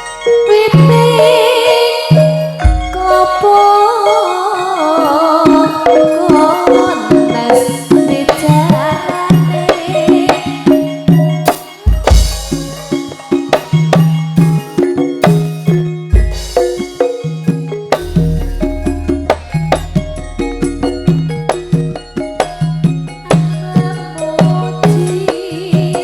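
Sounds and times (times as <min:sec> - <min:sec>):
hand drums: 0:00.0 - 0:26.0
pitched percussion: 0:00.0 - 0:26.0
wavering melodic line: 0:00.0 - 0:26.0
deep low percussion stroke: 0:18.0 - 0:23.6.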